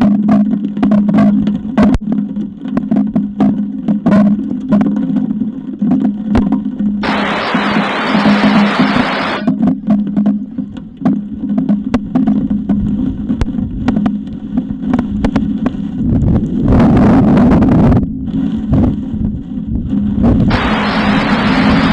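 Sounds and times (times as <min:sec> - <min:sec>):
crackling ticks: 0:00.0 - 0:07.0, 0:09.4 - 0:20.6
steady hum: 0:01.4 - 0:21.9
wind buffeting microphone: 0:06.4 - 0:21.9.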